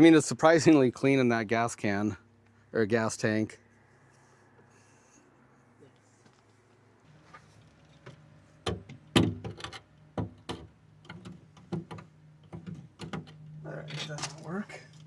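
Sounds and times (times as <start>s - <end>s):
low steady hum: 7.1s - 15.0s
sharp clicks and knocks: 7.3s - 15.0s.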